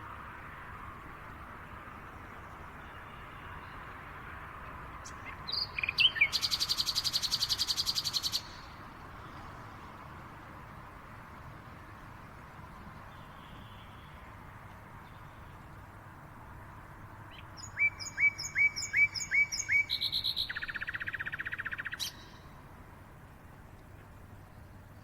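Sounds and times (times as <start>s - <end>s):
steady background hiss: 0.0s - 25.0s
songbird singing: 2.0s - 9.7s, 12.6s - 22.8s.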